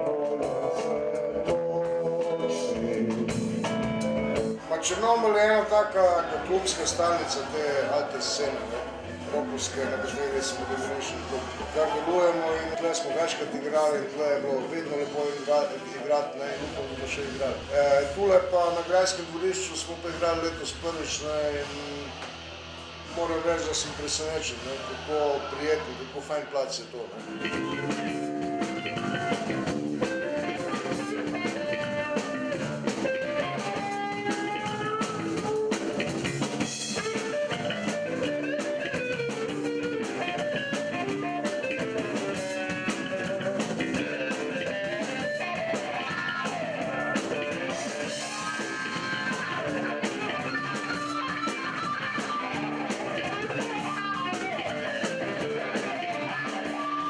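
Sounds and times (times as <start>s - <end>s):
electric guitar: 0.0s - 57.0s
steady drum beat: 0.0s - 57.0s.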